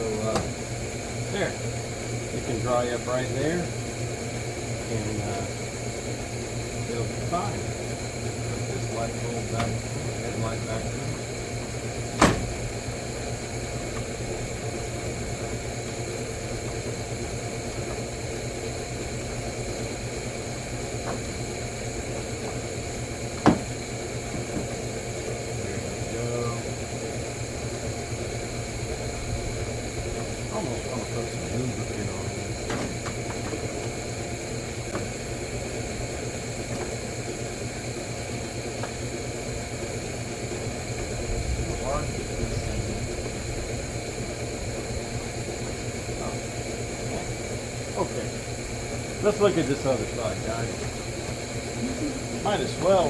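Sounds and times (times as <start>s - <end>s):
low mechanical hum: 0.0s - 53.0s
sharp knock: 12.2s - 12.5s
low hum and hiss: 39.3s - 53.0s.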